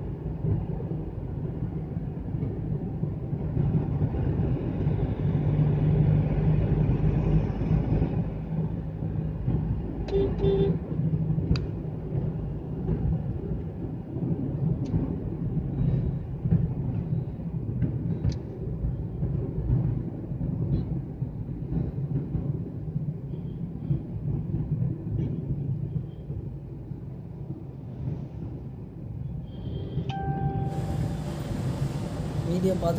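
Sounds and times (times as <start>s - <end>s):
car road and engine rumble: 0.0s - 32.9s
vehicle horn toot: 10.1s - 10.8s.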